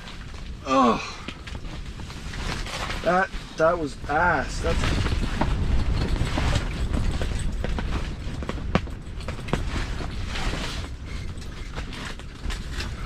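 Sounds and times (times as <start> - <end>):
fabric and frame ticking: 0.0 - 13.0
wind rumbling on microphone: 0.0 - 13.0.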